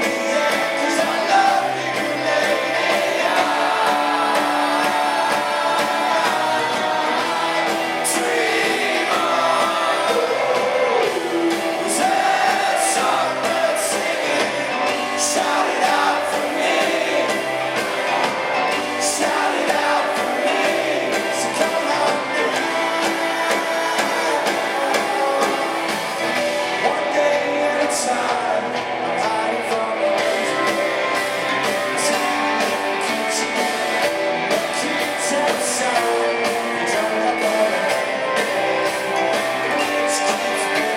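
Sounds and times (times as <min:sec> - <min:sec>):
lead vocal singing: 0:00.0 - 0:40.9
live rock band playing: 0:00.0 - 0:40.9.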